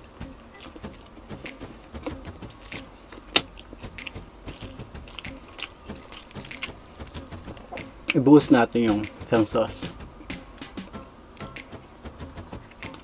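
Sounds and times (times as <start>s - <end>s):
wet chewing and mouth smacks: 0.5s - 7.9s.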